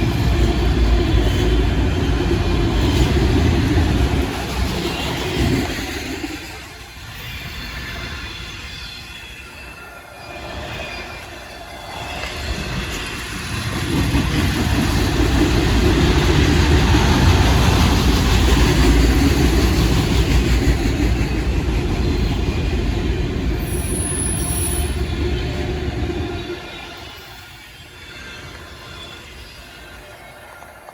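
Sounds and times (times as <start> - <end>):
freight train wheels rumbling: 0.0 - 30.9
high wheel squeal: 23.6 - 25.3.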